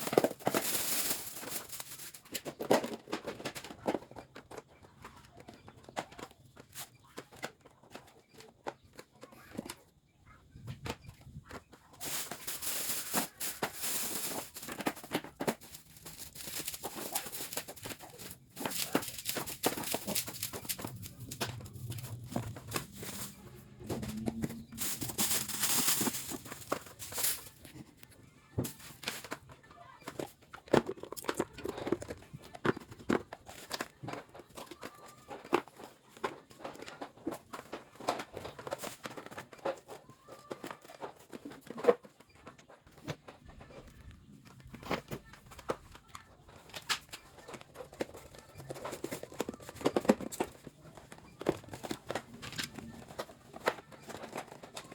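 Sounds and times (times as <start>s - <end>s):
rustling: 0.0s - 2.6s, 11.5s - 32.2s
items clicking and knocking: 0.0s - 54.9s.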